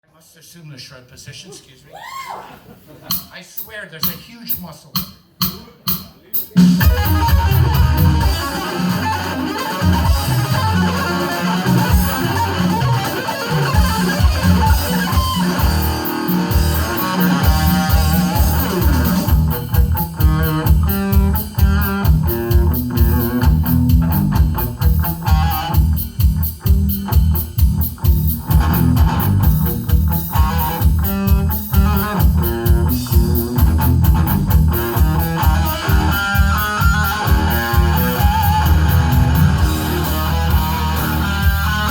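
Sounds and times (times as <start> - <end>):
rapid low drum beat: 3.1 - 41.9
bass guitar: 6.6 - 41.9
electric guitar lead: 6.6 - 41.9.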